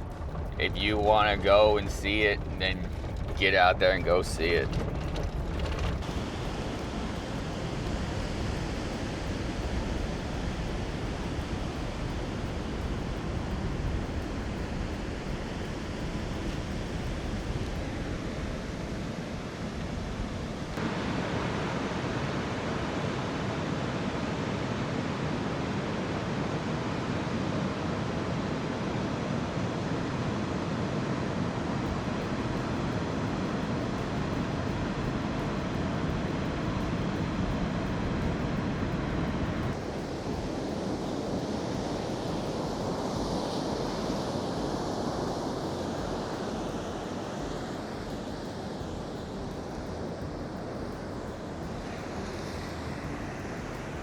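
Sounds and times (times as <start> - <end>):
ocean surf: 0.0 - 54.0
wind: 0.0 - 54.0.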